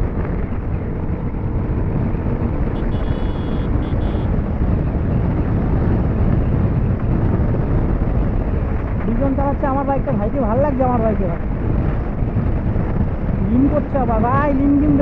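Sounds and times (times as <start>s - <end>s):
motorcycle engine running: 0.0s - 8.9s
wind rush on microphone: 0.0s - 15.0s.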